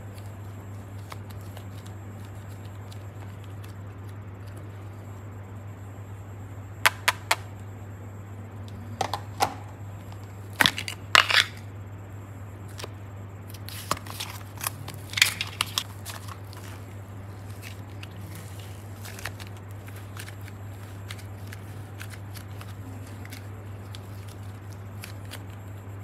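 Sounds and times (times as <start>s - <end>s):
steady low hum: 0.0s - 26.0s
play clay squeezed crackling: 13.5s - 25.8s.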